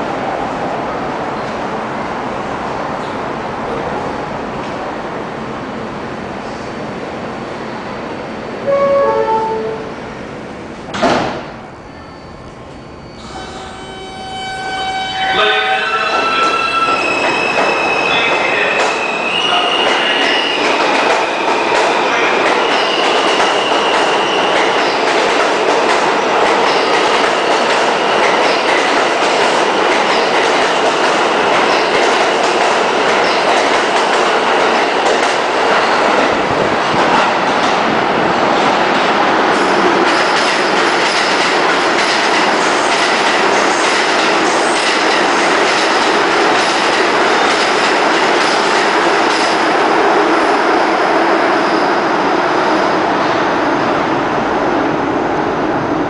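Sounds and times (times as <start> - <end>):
train wheels rumbling clickety-clack: 16.4 - 50.5.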